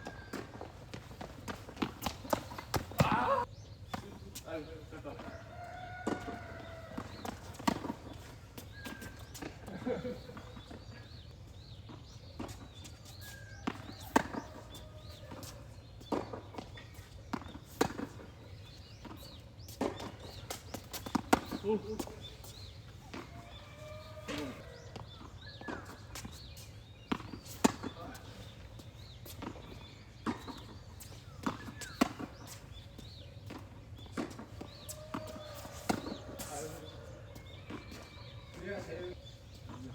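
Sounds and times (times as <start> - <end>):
tennis ball bouncing on court: 0.0 - 4.2, 5.2 - 10.9, 11.9 - 18.3, 18.9 - 38.7
players' footsteps: 0.0 - 39.9
tennis ball hit by racquet: 0.2 - 4.0, 6.0 - 8.3, 13.6 - 16.4, 27.1 - 37.0.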